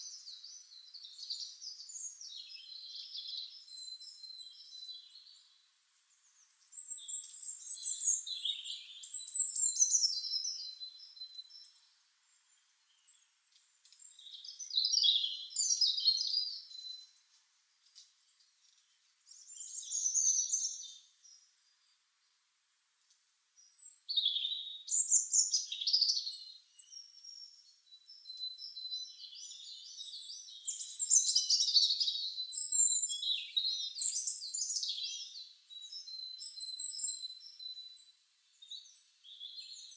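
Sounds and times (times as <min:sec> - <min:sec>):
small birds warbling and chirping: 0:00.0 - 0:22.0, 0:23.6 - 0:39.9.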